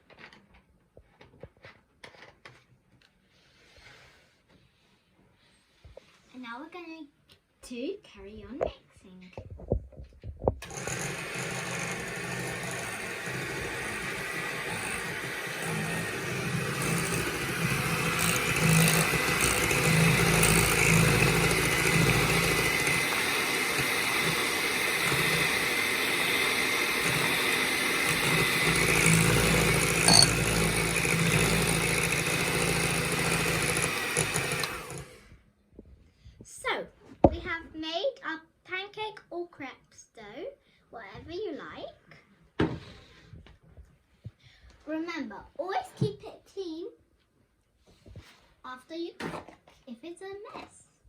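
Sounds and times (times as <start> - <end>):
electric mixer running: 10.6 - 35.4.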